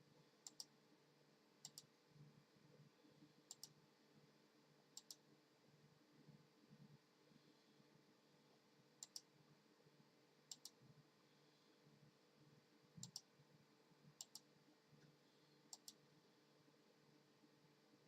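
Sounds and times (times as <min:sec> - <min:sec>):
faint sharp clicks: 0:00.4 - 0:00.8, 0:01.6 - 0:01.9, 0:03.5 - 0:03.8, 0:05.0 - 0:05.2, 0:09.0 - 0:09.3, 0:10.5 - 0:10.8, 0:13.0 - 0:13.3, 0:14.2 - 0:16.0.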